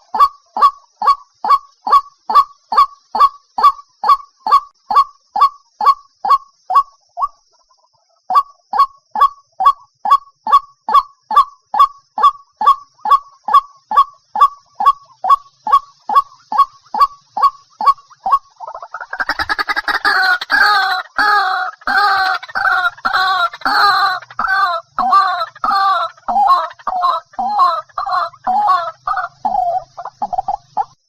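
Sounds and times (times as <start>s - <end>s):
waterhen calling: 12.2s - 31.0s.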